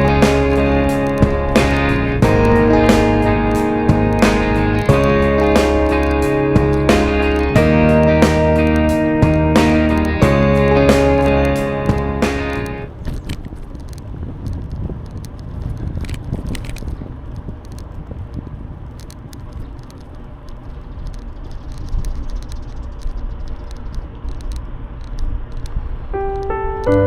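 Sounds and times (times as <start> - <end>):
music: 0.0 - 12.9, 26.2 - 27.0
light clicks and rattles: 12.9 - 25.8
bicycle tyres on path: 12.9 - 26.3.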